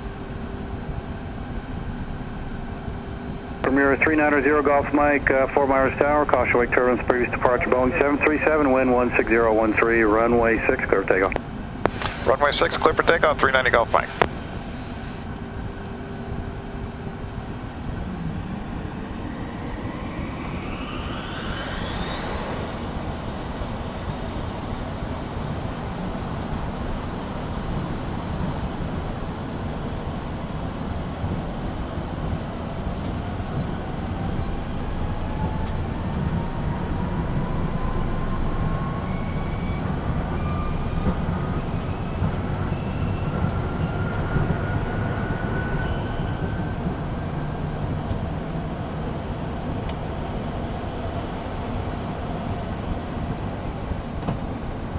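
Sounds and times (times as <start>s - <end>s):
constant engine rumble: 0.0s - 54.9s
jet engines whine: 0.0s - 54.9s
lower rising engine tone: 0.1s - 54.9s.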